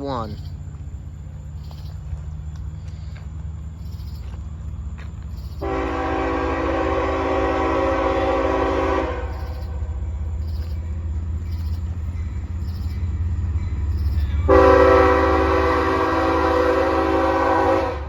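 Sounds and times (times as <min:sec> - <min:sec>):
locomotive air horn blast: 0:05.6 - 0:10.0, 0:14.4 - 0:18.0.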